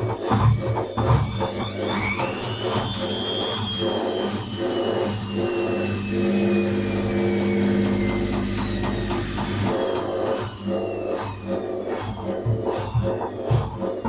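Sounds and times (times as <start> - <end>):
washing machine drum whining: 0.0 - 14.0.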